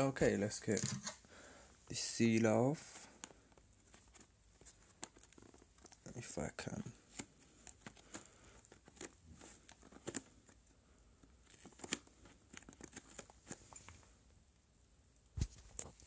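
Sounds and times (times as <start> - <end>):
small clicks and crackles: 3.0 - 14.0
packaging seal tearing and crinkling: 11.5 - 13.3.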